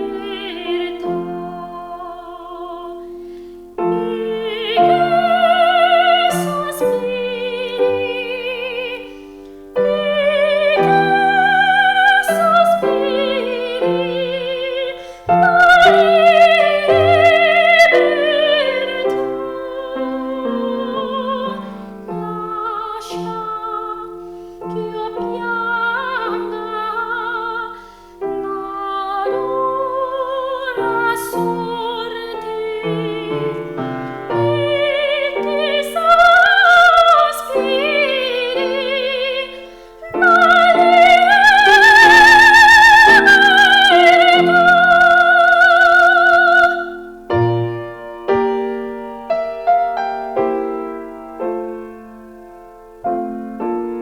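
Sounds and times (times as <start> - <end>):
piano: 0.0 - 54.0
person singing operatically: 3.9 - 9.1, 9.8 - 27.8, 28.4 - 47.2.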